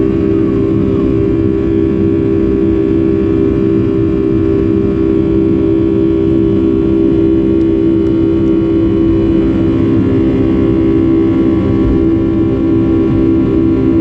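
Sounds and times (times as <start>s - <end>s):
jet engine drone in cabin: 0.0s - 14.0s.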